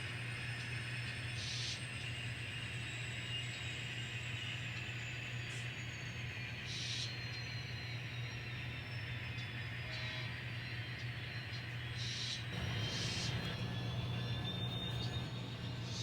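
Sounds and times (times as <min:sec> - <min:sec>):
model train humming: 0:12.5 - 0:16.0.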